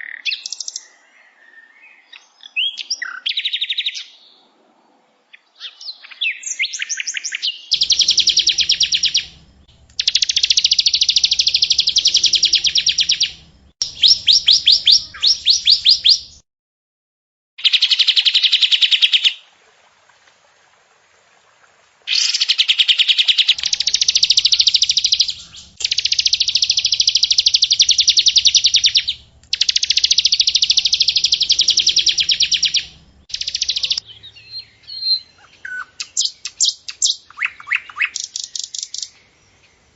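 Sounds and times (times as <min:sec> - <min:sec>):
songbird fast high trills: 0:07.7 - 0:09.4, 0:10.0 - 0:16.4, 0:22.1 - 0:39.2.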